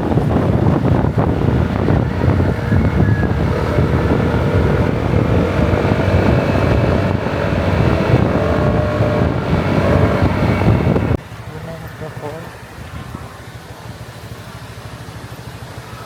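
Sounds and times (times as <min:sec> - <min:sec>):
wind rumble on microphone: 0:00.0 - 0:11.2
scooter engine drone: 0:00.0 - 0:16.0.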